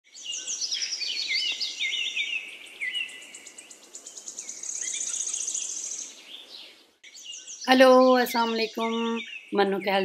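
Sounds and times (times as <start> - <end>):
high bird trill: 0.1 - 10.0
bird chirping and whistling: 4.3 - 6.1.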